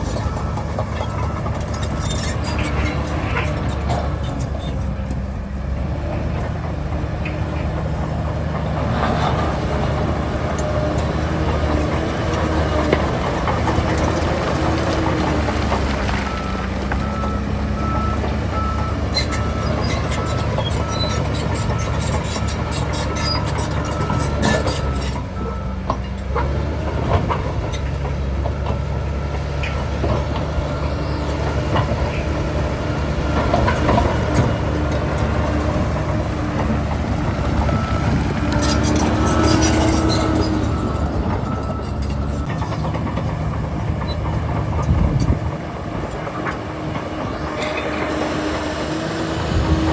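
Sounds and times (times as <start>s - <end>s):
reversing alarm beeping: 0.0s - 2.2s, 15.3s - 26.2s, 28.4s - 45.3s
diesel engines running: 0.0s - 49.9s.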